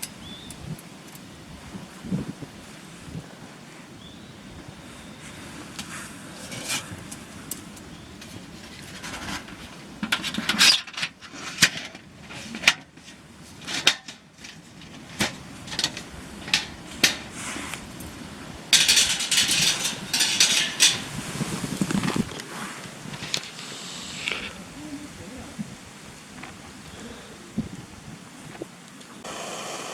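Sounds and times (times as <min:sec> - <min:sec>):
camp gear clinking and knocking: 0:06.4 - 0:17.4, 0:18.7 - 0:23.7
gear rustling and clattering: 0:18.8 - 0:23.6.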